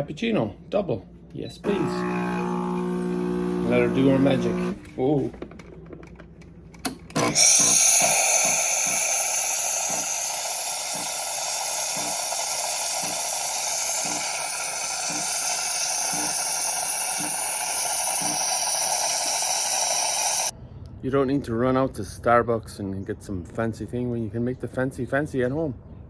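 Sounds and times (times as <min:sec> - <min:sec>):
steam hissing: 0:01.6 - 0:04.8, 0:07.2 - 0:20.5.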